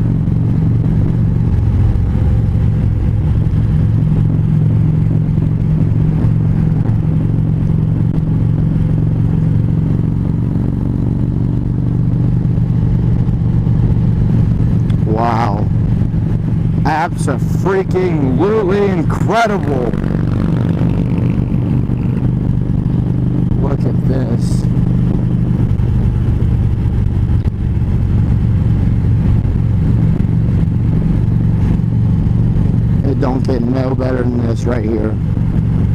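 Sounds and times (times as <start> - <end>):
motorcycle engine cruising: 0.0 - 35.9.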